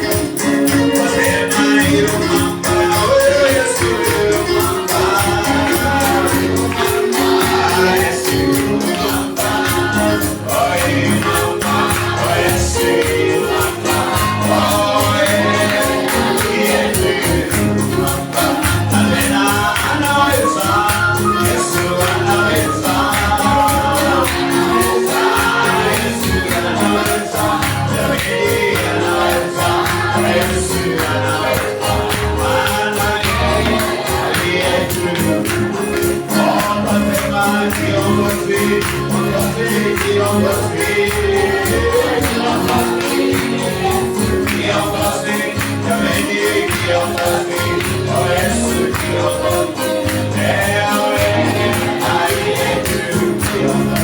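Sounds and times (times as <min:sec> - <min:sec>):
bass line: 0:00.0 - 0:46.1
group singing gospel song: 0:00.0 - 0:54.0
tambourine beat: 0:00.0 - 0:54.0.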